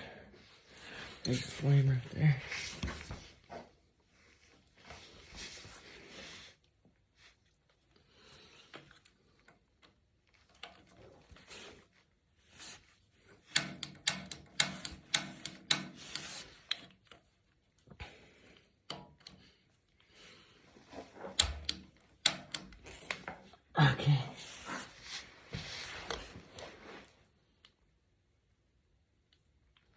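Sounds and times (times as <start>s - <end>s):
sharp clicks and rattles: 13.4s - 17.4s, 21.3s - 23.6s.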